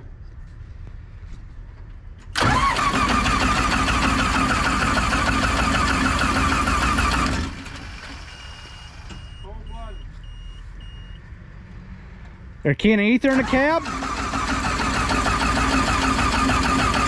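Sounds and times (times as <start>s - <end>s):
starter motor cranking engine: 2.4s - 8.5s, 13.3s - 17.0s.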